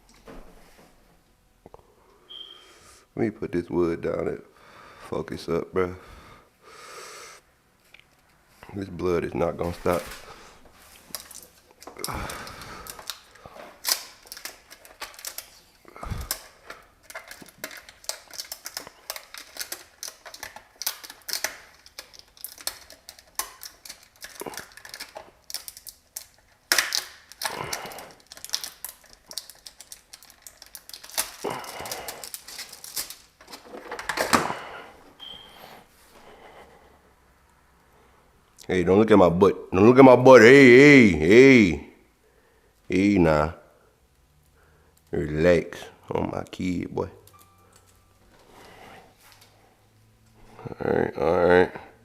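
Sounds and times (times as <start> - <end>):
objects being handled: 9.6 - 36.3.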